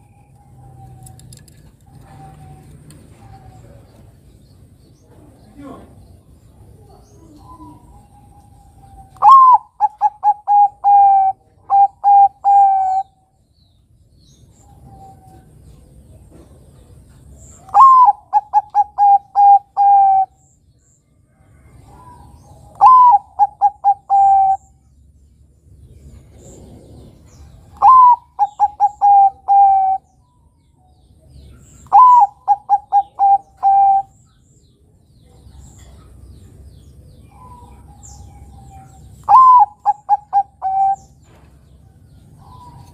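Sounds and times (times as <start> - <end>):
dove cooing: 0.4 - 4.2, 6.8 - 13.2, 17.6 - 20.4, 21.7 - 24.8, 26.2 - 30.2, 31.8 - 34.2, 37.2 - 41.3.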